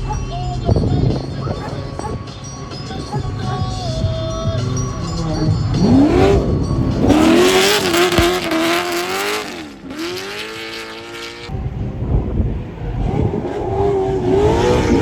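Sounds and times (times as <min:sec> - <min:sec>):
tires squealing: 0:00.0 - 0:11.5
car engine revving: 0:00.0 - 0:15.0.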